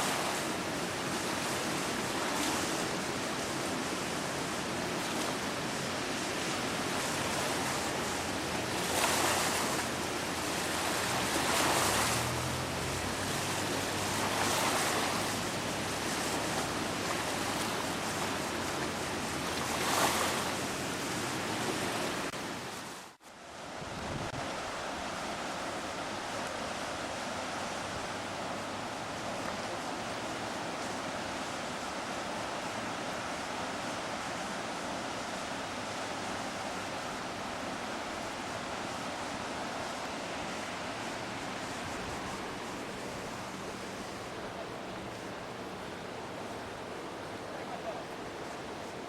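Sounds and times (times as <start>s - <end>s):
river rushing through a dam: 0.0s - 49.0s
wind buffeting microphone: 23.8s - 24.8s.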